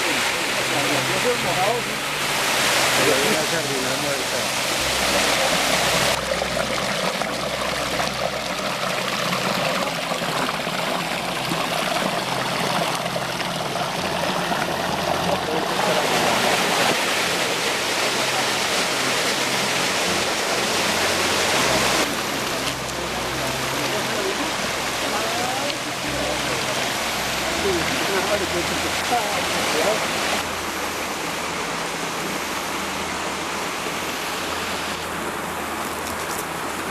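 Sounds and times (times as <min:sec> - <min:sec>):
stream water rushing: 0:00.0 - 0:36.9.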